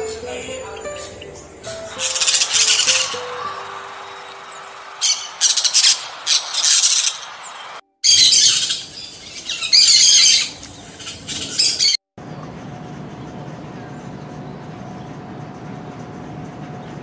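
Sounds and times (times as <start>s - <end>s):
birds chattering shrilly: 0.0s - 12.0s
harsh bird squawks: 0.4s - 12.0s.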